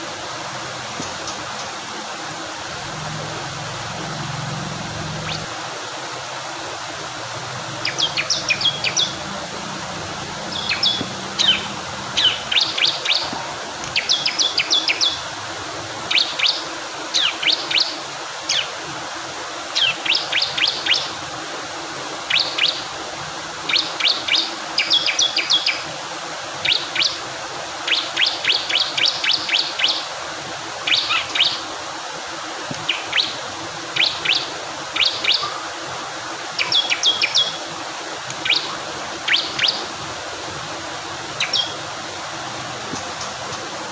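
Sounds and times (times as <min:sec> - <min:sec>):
flowing water: 0:00.0 - 0:43.9
bird singing high sharp chirps: 0:05.2 - 0:05.5, 0:07.8 - 0:09.2, 0:10.5 - 0:13.3, 0:38.4 - 0:39.8, 0:41.4 - 0:41.8.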